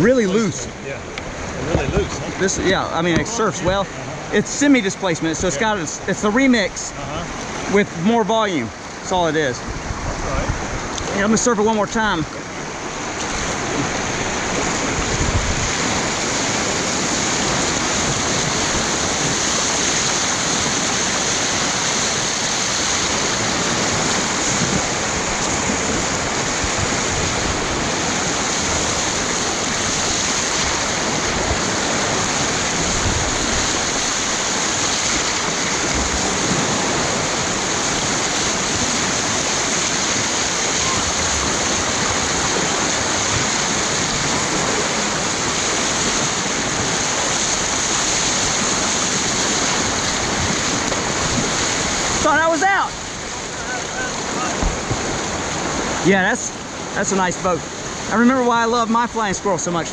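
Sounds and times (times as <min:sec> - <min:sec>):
whitewater rushing: 0:00.0 - 0:59.9
faint low bumps: 0:00.6 - 0:04.0, 0:54.5 - 0:55.6.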